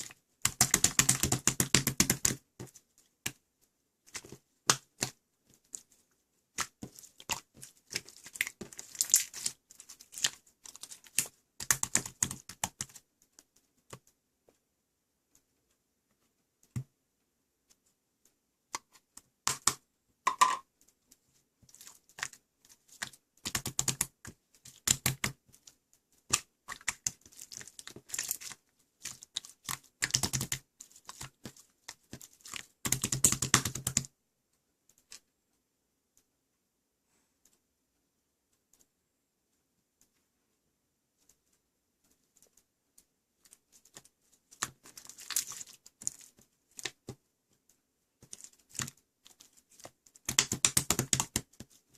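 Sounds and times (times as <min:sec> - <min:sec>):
rapid clicking and tapping: 0:00.4 - 0:02.8, 0:29.1 - 0:34.1, 0:49.8 - 0:51.8.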